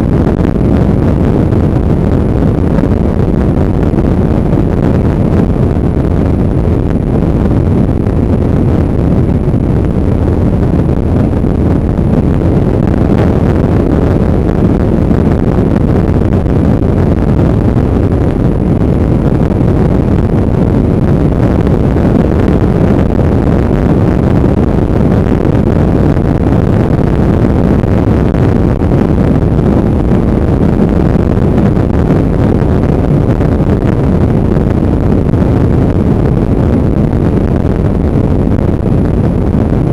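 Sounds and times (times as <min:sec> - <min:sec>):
road noise: 0:00.0 - 0:25.5
wind noise on microphone: 0:00.0 - 0:39.9.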